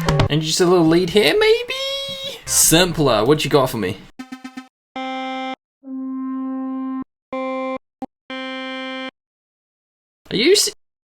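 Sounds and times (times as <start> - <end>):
synth lead notes: 4.2 - 9.1.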